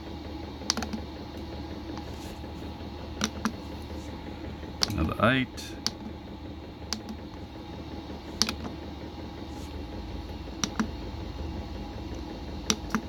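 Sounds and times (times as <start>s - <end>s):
heater humming: 0.0s - 13.0s
control panel button clicks: 10.6s - 10.9s.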